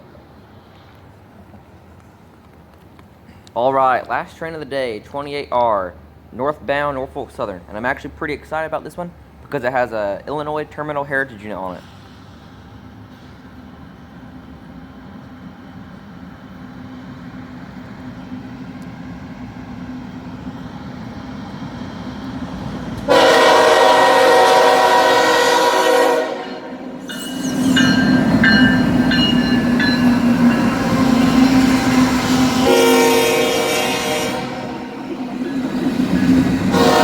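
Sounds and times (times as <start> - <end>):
diesel locomotive engine rumble: 0.0 - 37.0
locomotive air horn blast: 23.1 - 27.0, 30.7 - 35.4, 36.7 - 37.0.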